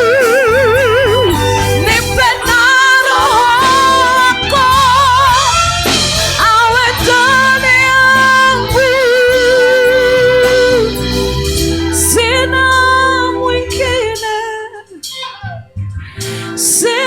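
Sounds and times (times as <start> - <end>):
keyboard and bass backing: 0.0 - 17.0
person singing with vibrato: 0.0 - 17.0.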